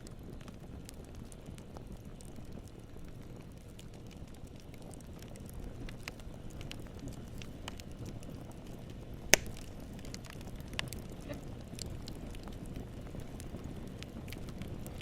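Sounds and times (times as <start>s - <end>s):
campfire flames rumbling: 0.0s - 15.0s
wood crackling: 0.0s - 15.0s
sharp loud pop: 9.3s - 9.6s.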